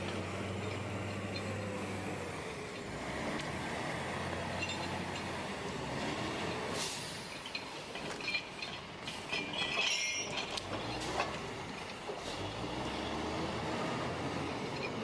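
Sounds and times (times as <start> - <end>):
metallic clanks: 7.0 - 12.3.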